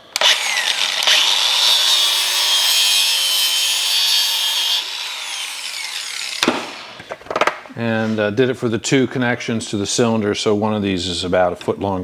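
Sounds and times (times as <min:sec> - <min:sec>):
power tool cutting: 0:00.0 - 0:07.1.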